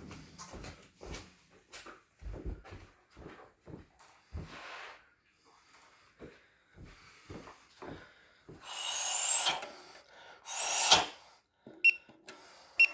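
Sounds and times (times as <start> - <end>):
rasping scrapes with squeak: 10.5 - 11.2.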